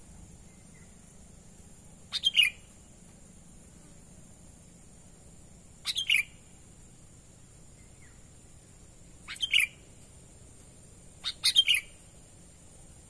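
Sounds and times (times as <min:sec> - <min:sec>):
bulbul calling: 0:02.0 - 0:02.9, 0:05.8 - 0:06.6, 0:09.2 - 0:09.9, 0:11.2 - 0:12.1.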